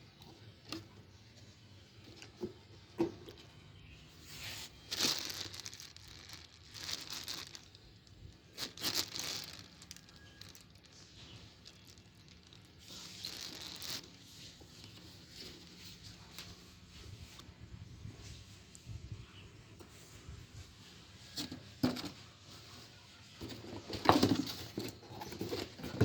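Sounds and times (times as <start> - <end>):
packaging crinkling and tearing: 4.4 - 16.5.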